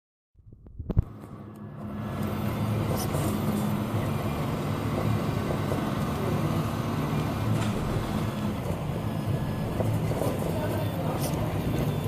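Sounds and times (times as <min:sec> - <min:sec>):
fan noise: 0:00.4 - 0:12.0
stepper motors humming: 0:00.7 - 0:12.0.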